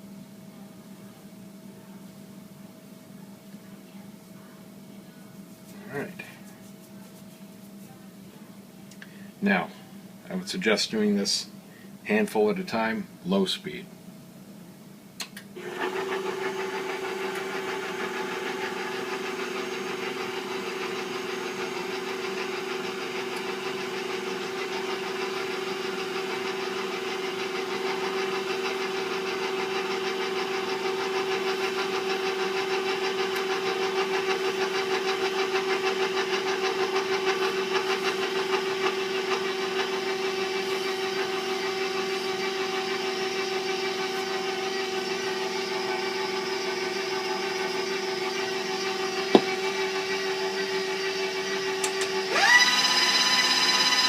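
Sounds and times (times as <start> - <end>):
electric mixer motor humming: 15.6 - 54.0.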